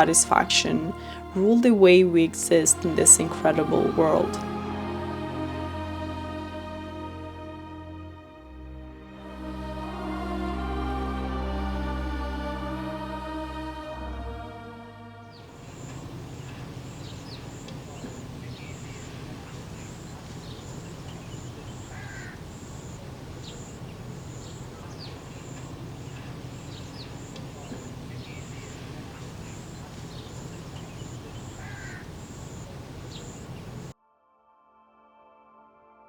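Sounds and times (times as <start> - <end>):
birds calling: 0.0 - 4.5, 15.3 - 33.9
low background noise: 0.0 - 7.4, 15.3 - 34.0
crow-like caws: 15.5 - 33.9.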